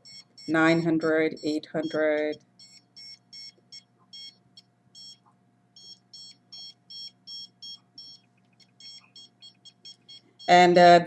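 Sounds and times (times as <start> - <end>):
short high electronic beeps: 1.8 - 4.4, 8.8 - 10.6.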